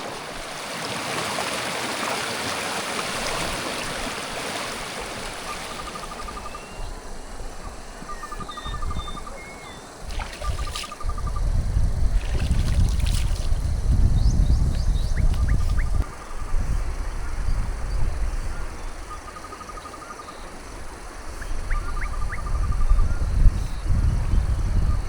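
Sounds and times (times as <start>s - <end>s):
small birds trilling and chirping: 3.3s - 16.7s.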